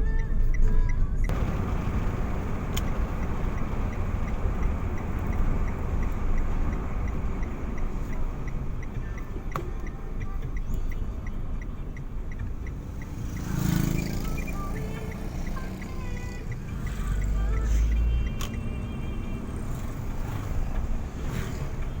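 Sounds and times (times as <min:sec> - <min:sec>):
car rumbling on road: 0:00.3 - 0:22.0
faint high ticks: 0:02.7 - 0:18.7.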